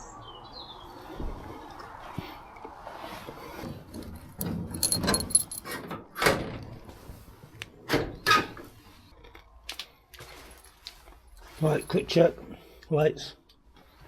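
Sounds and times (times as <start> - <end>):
keys jangling: 3.9 - 5.8
metal door rattling and knocking: 4.0 - 6.8.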